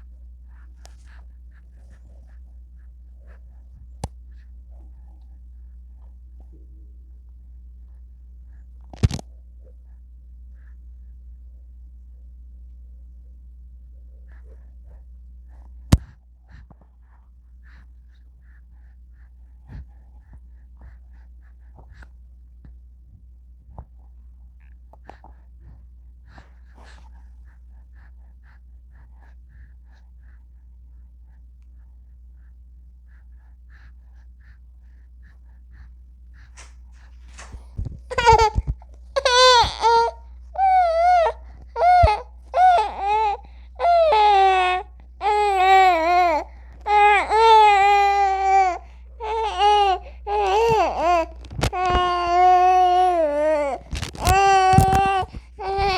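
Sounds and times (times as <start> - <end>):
infant breathing softly: 0.0 - 6.5, 14.0 - 22.9, 23.6 - 44.0, 44.7 - 55.9
steady low hum: 0.0 - 55.9
infant crying: 38.1 - 38.6, 39.2 - 55.9.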